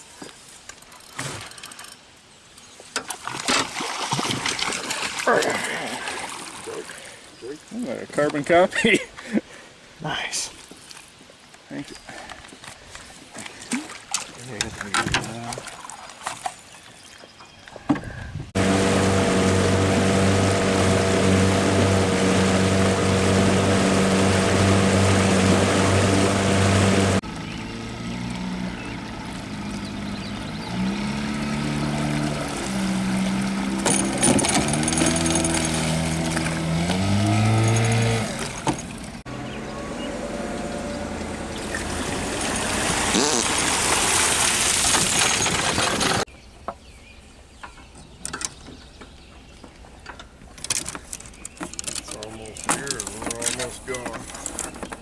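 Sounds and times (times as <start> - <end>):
water rushing: 18.6 - 27.9, 28.5 - 39.3, 39.9 - 46.3
motorboat engine running: 18.6 - 46.2.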